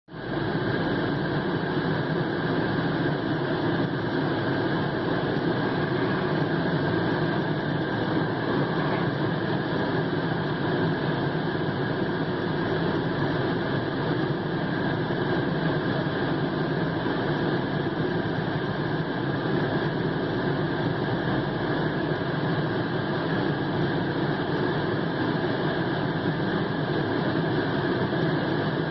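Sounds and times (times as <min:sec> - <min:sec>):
car engine running: 0:00.8 - 0:16.9.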